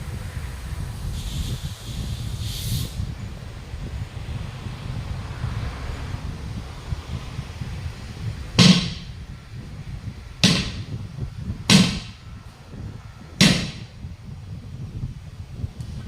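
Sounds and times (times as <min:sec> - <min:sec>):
steady low rumble: 0:00.0 - 0:16.0
heavy hammer blows ringing: 0:08.6 - 0:09.2, 0:10.4 - 0:11.0, 0:11.7 - 0:12.3, 0:13.4 - 0:14.0.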